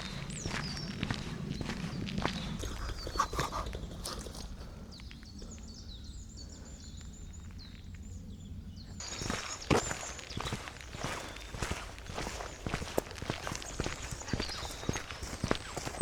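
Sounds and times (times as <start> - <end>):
footsteps on forest path: 0.0 - 8.1, 9.0 - 16.0
songbird warbling: 4.9 - 16.0.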